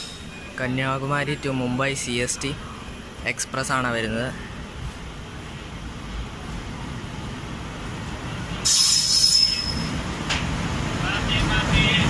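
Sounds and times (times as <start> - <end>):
train brakes screeching: 0.0 - 0.4, 8.6 - 10.0
train rumbling: 0.0 - 12.0.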